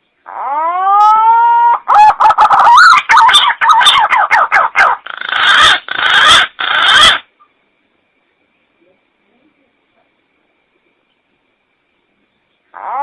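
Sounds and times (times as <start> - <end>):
pigeon whistling calls: 0.4 - 7.2.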